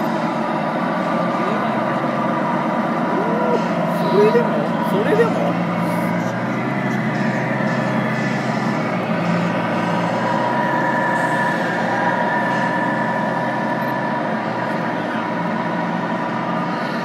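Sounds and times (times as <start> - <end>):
simulated diesel truck engine drone: 0.0 - 17.0
people talking: 1.2 - 2.2, 3.0 - 8.4.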